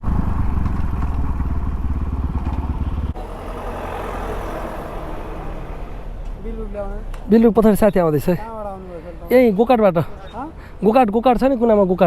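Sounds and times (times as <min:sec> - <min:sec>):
dirt bike engine running: 0:00.0 - 0:05.7.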